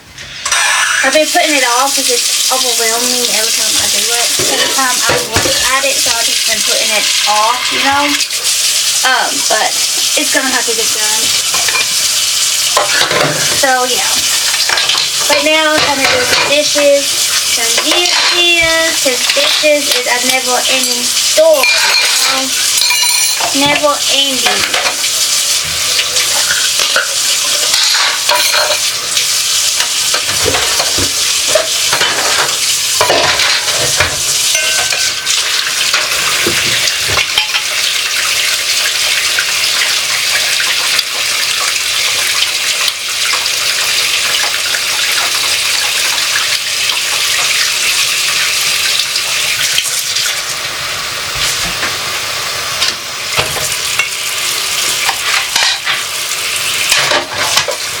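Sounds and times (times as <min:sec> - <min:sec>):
kitchen tap running into sink: 0:00.0 - 0:58.0
dishes and cutlery clinking: 0:00.4 - 0:01.2, 0:04.3 - 0:05.7, 0:11.5 - 0:12.0, 0:12.8 - 0:13.7, 0:14.5 - 0:16.6, 0:17.7 - 0:20.0, 0:21.6 - 0:25.1, 0:25.9 - 0:38.0, 0:55.0 - 0:56.1, 0:56.9 - 0:57.8.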